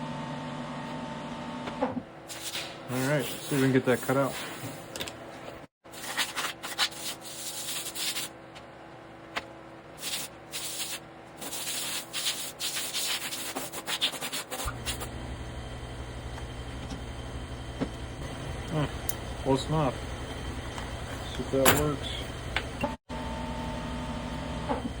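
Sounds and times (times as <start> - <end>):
scraping and rubbing strokes: 10.0 - 15.0.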